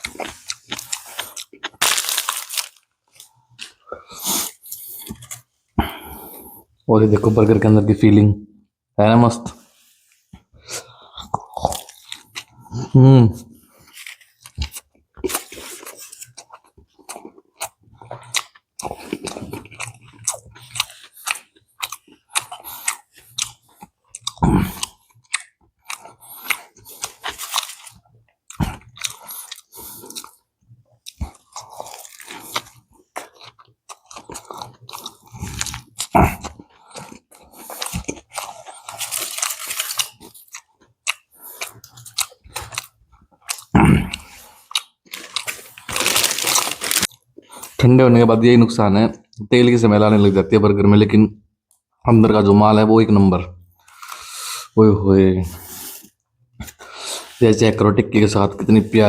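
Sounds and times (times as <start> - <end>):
chewing and crunching food: 0.0 - 6.9, 9.7 - 47.9, 53.6 - 54.8
wet mouth sounds: 31.0 - 39.2.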